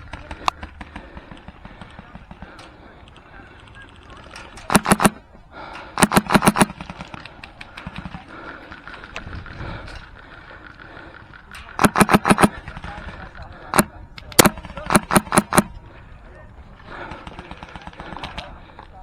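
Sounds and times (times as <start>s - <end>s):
airsoft rifle firing bursts: 4.7s - 5.2s, 6.0s - 7.2s, 11.8s - 12.6s, 13.8s - 15.8s.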